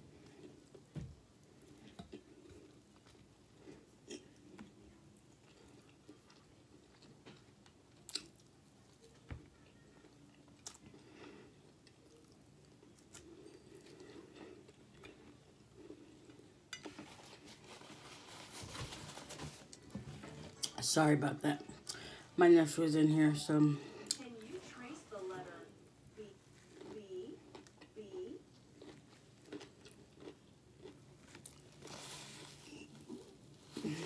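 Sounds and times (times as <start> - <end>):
person chewing food: 0.0 - 9.2, 9.8 - 20.0, 26.5 - 34.0
paper napkin rustling: 17.0 - 20.6, 31.8 - 34.0.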